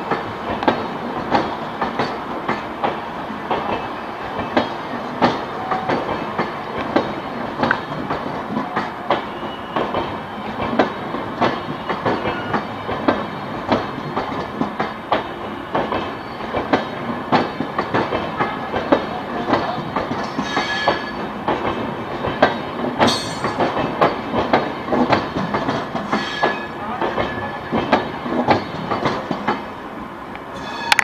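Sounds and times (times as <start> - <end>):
train wheels clattering over joints: 0.0 - 29.7
train rumble: 0.0 - 31.0.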